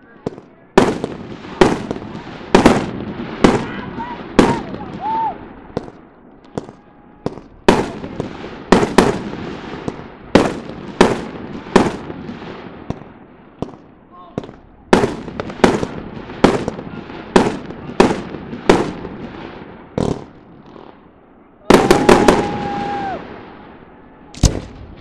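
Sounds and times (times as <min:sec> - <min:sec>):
fireworks bursting with sharp bangs: 0:00.0 - 0:25.0.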